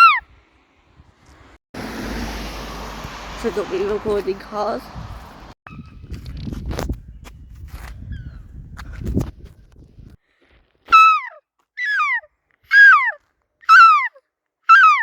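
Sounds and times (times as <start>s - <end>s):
seagull calls: 0.0s - 0.2s, 10.9s - 15.0s
low traffic rumble: 0.6s - 5.6s.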